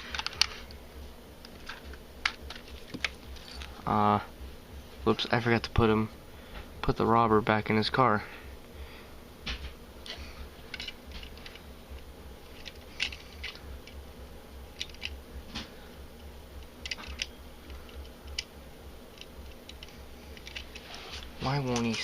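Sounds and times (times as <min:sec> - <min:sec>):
low steady hum: 0:00.0 - 0:22.0
plastic pieces clicking and tapping: 0:01.5 - 0:03.2, 0:16.8 - 0:18.5.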